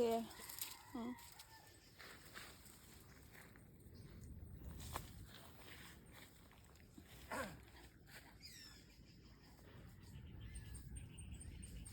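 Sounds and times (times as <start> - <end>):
faint high chirp: 8.4 - 11.9.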